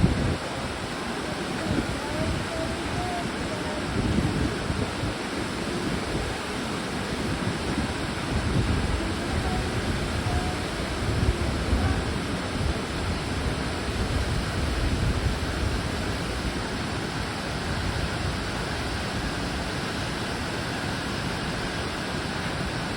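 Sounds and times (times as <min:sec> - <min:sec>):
low buffeting: 0:00.0 - 0:17.0
rushing water: 0:00.0 - 0:22.9.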